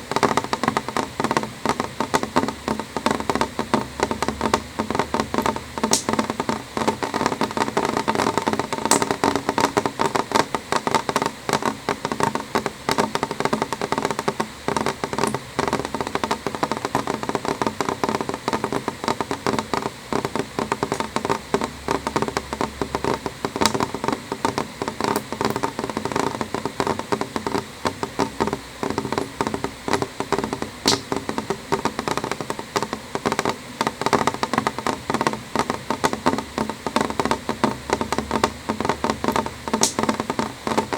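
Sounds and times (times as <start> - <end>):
rain tapping window glass: 0.0 - 40.9.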